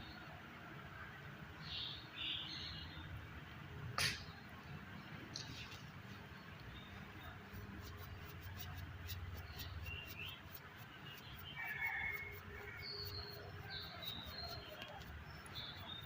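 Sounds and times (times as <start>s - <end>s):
birds chirping: 4.2s - 16.0s.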